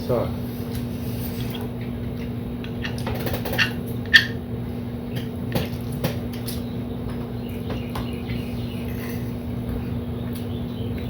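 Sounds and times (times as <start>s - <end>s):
steady low hum: 0.0s - 11.0s
cutlery clinking on a plate: 2.7s - 4.4s.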